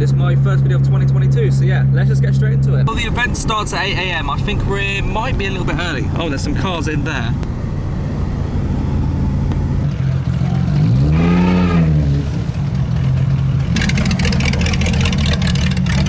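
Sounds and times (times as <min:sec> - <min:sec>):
car engine revving: 0:02.9 - 0:16.0.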